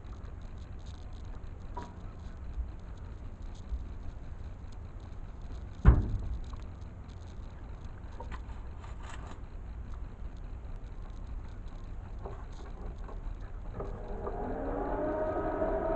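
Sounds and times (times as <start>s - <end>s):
faint ticks and rattles: 0.0s - 15.9s
low rumble: 0.0s - 15.9s
loud thump: 5.8s - 6.2s.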